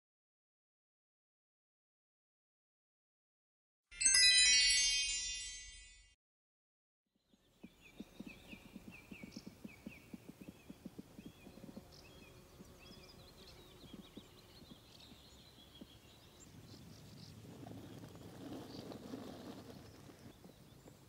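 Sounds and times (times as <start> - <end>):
faint high bird chirps: 7.2 - 17.4.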